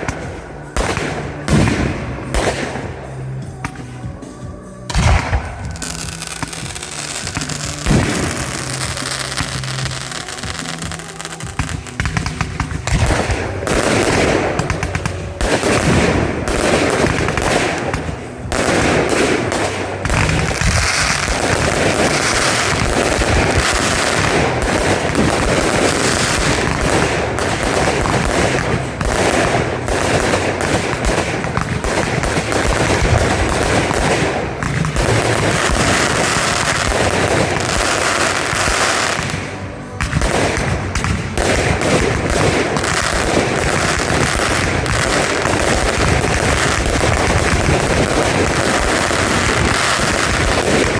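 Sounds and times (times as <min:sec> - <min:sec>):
fireworks bangs and crackles: 0:00.0 - 0:50.9.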